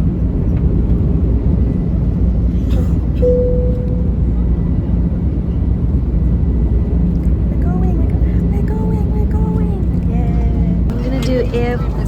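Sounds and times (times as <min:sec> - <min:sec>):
airliner engines rumbling: 0:00.0 - 0:12.0
short steady tone: 0:03.2 - 0:04.4.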